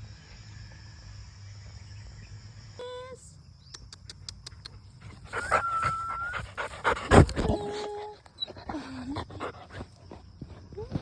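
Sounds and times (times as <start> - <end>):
dog whining and panting: 5.1 - 10.2.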